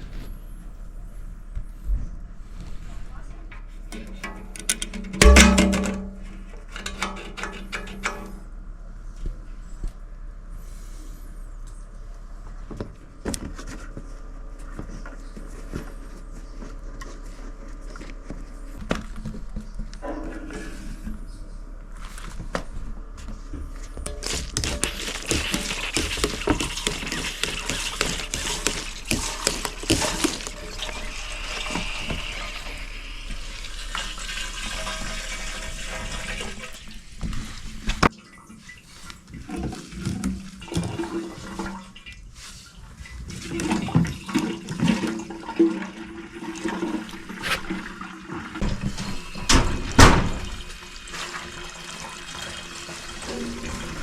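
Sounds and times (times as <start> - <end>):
liquid gurgling through hand pump: 24.2 - 37.8, 50.5 - 54.0.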